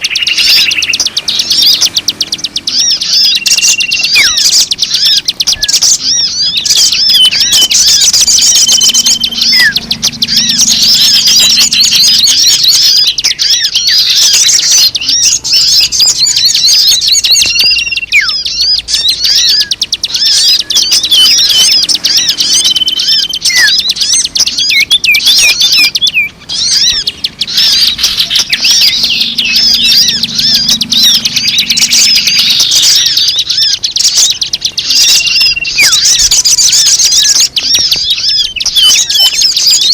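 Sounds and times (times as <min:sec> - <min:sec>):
chorus of birds chirping: 0:00.0 - 0:39.9.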